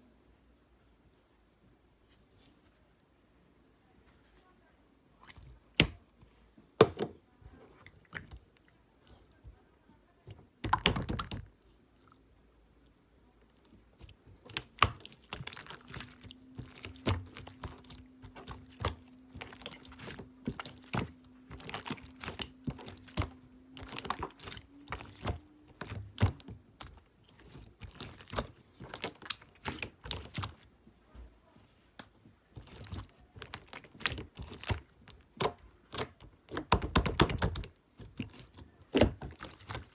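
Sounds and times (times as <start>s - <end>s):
slime squished by hand: 13.7s - 30.7s, 32.0s - 39.9s.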